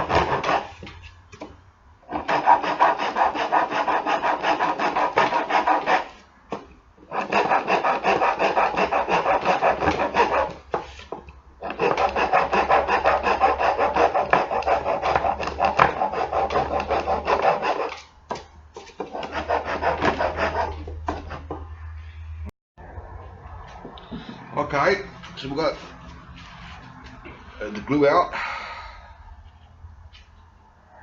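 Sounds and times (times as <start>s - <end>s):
hand rasp filing wood: 0.0s - 0.9s, 2.1s - 6.2s, 7.0s - 18.0s, 19.0s - 21.5s.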